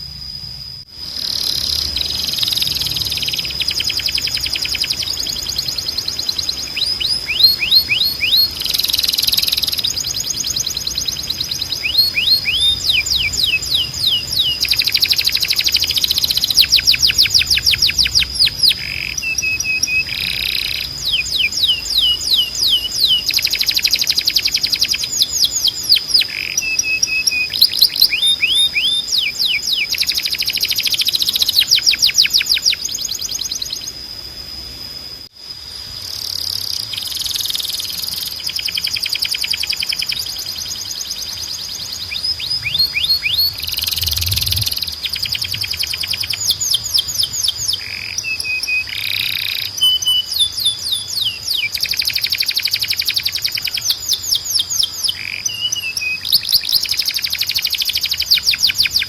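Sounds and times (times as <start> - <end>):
canary singing: 1.1 - 34.0, 36.3 - 59.0.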